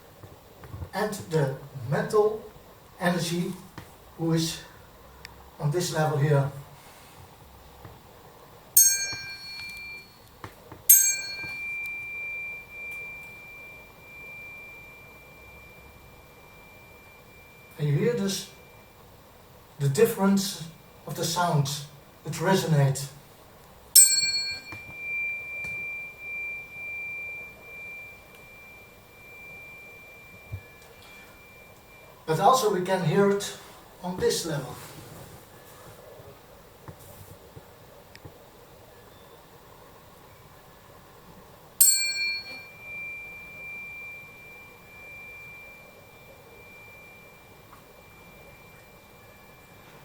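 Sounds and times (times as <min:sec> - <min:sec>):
tuning fork ringing: 0:08.7 - 0:21.1, 0:23.9 - 0:34.6, 0:41.7 - 0:50.0.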